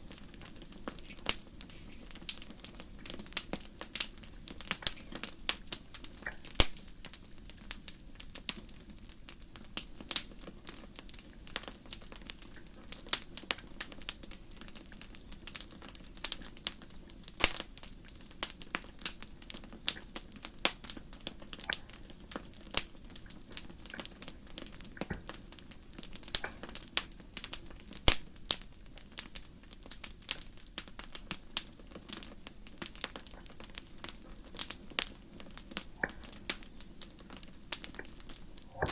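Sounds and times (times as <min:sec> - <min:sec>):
low steady hiss: 0:00.0 - 0:38.9
wood fire crackling: 0:00.0 - 0:38.9.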